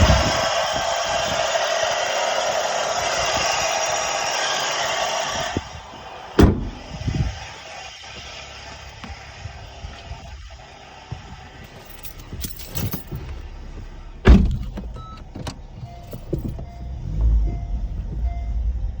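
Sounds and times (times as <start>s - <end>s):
low car rumble: 0.0s - 19.0s
loud thump: 6.4s - 7.4s, 14.2s - 14.9s.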